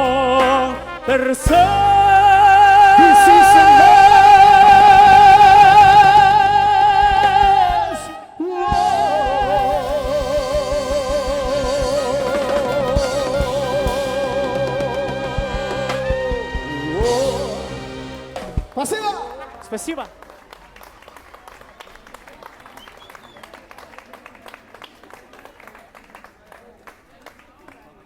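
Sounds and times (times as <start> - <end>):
operatic singing: 0.0 - 20.0
band accompaniment: 0.0 - 20.7.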